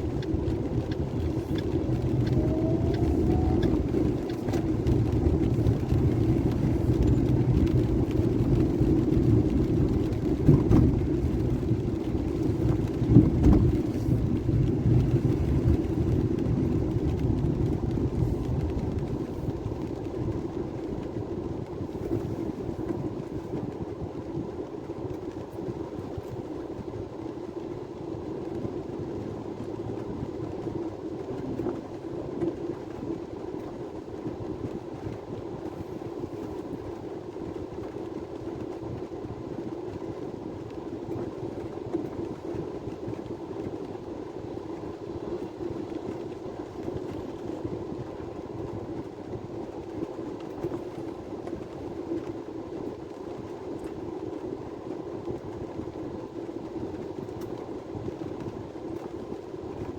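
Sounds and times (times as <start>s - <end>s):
vehicle rumble from inside: 0.0s - 26.8s.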